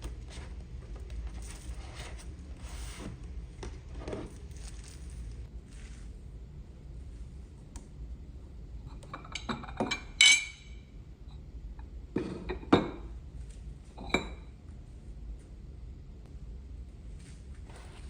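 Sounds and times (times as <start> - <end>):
tableware clinking: 9.2 - 10.8.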